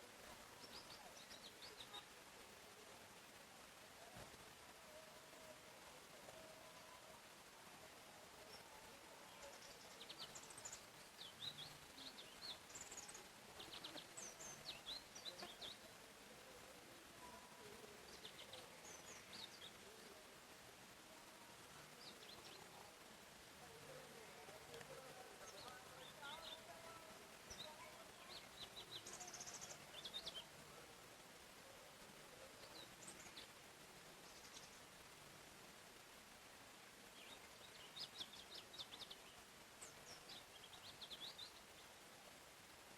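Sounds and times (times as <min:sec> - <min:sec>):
faint songbirds chirping: 0:00.0 - 0:42.9
soft background hiss: 0:00.0 - 0:42.9.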